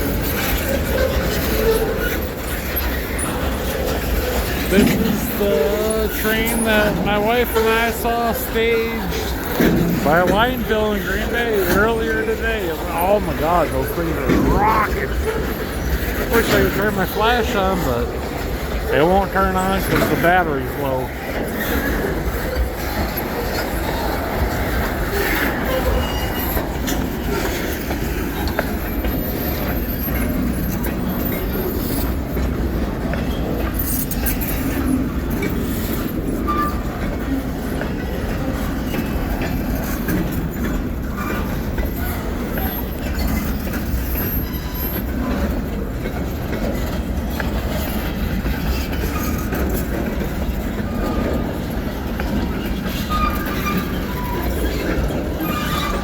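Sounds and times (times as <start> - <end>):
wheel squeals: 38.8 - 45.6, 50.4 - 56.0.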